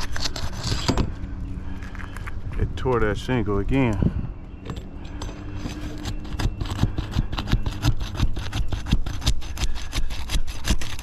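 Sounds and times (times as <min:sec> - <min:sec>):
roof shingle tearing and crackling: 0:05.6 - 0:11.0.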